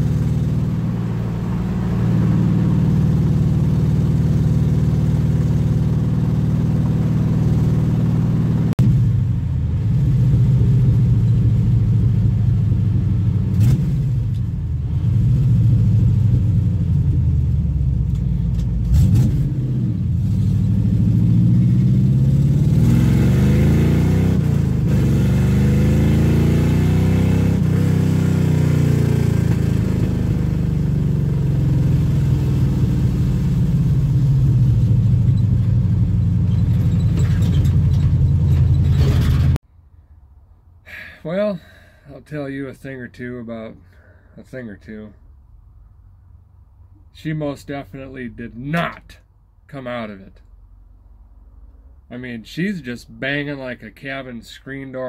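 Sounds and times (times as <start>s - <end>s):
car engine revving: 0.0s - 39.6s.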